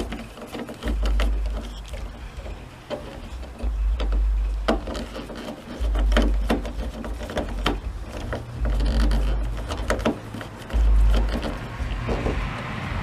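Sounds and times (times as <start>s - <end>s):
low rumbles on microphone: 10.7s - 13.0s.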